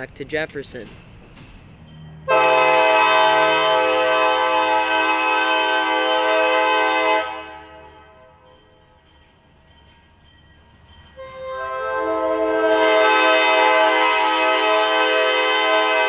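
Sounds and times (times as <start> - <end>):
locomotive air horn blasts: 2.2 - 8.5, 11.2 - 16.0.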